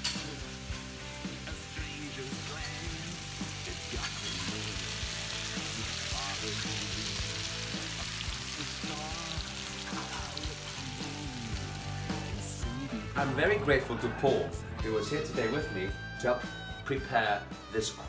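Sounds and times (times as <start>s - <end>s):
vegetables sizzling in a frying pan: 0.0s - 12.3s.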